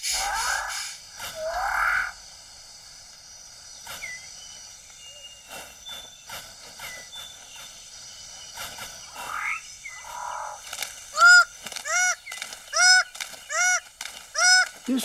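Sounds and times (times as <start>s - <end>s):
forest background: 0.0s - 15.0s
sharp bird chirps: 3.3s - 15.0s
whistled bird notes: 3.8s - 10.4s.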